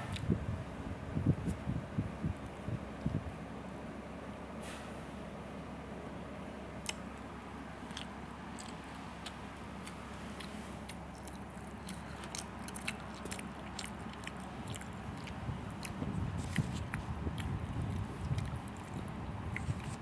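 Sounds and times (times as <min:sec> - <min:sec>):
steady low hum: 0:05.7 - 0:20.0
wet mouth clicks: 0:06.8 - 0:07.1, 0:07.9 - 0:20.0
chewing and biting: 0:06.8 - 0:20.0.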